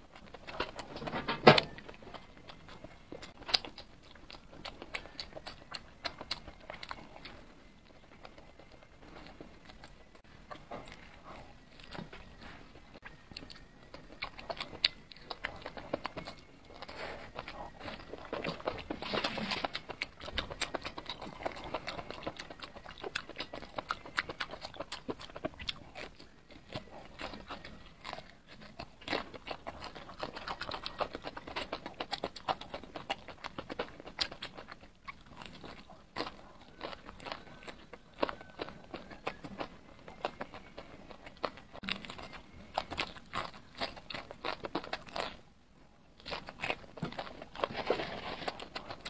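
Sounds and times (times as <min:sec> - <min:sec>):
person biting and chewing: 0:00.0 - 0:45.5, 0:46.2 - 0:49.0.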